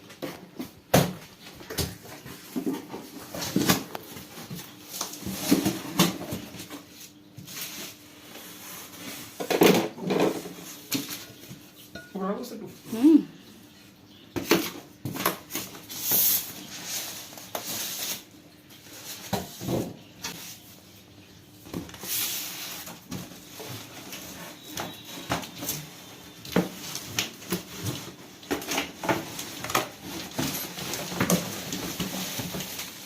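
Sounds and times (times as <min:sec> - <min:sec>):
rustling: 0:21.9 - 0:33.0.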